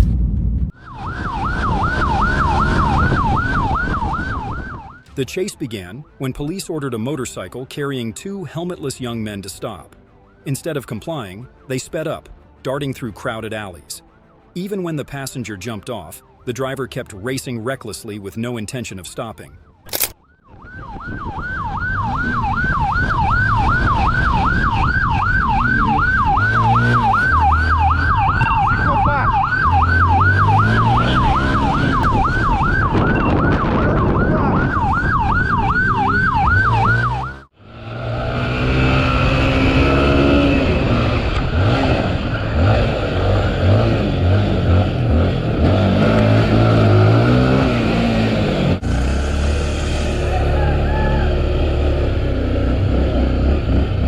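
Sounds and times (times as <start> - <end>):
vehicle engine and road noise: 0.0 - 7.9, 8.6 - 54.0
police siren yelping: 0.8 - 5.1, 19.4 - 37.6, 46.0 - 48.0, 50.2 - 51.5.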